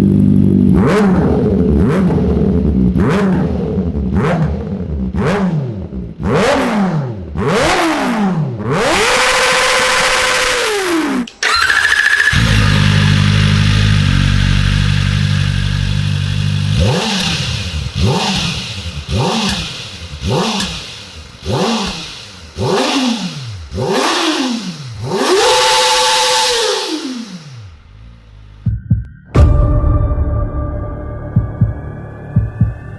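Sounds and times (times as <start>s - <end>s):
motorcycle engine revving: 0.0s - 28.7s
engine idling: 11.4s - 28.7s.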